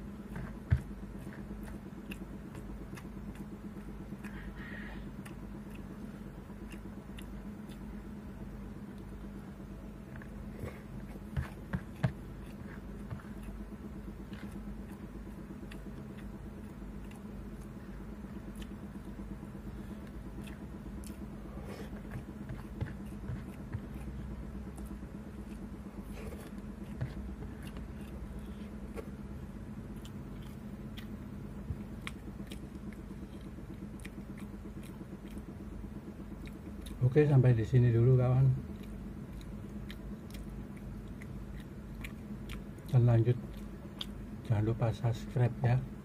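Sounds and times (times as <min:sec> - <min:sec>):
steady low hum: 0:00.0 - 0:46.0
chewing and mouth sounds: 0:00.2 - 0:37.5, 0:38.4 - 0:45.4.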